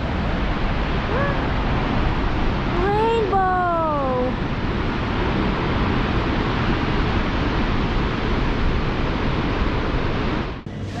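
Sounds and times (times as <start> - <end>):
wind rushing on microphone: 0.0 - 11.0.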